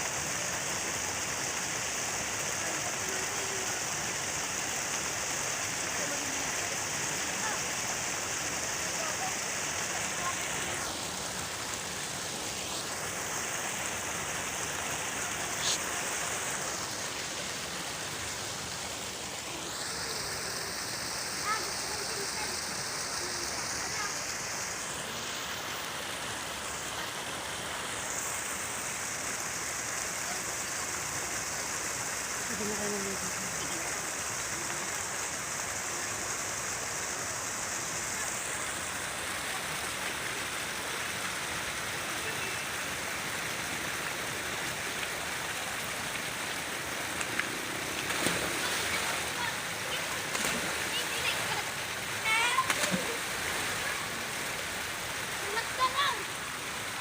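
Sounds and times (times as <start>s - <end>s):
falling water rushing: 0.0s - 57.0s.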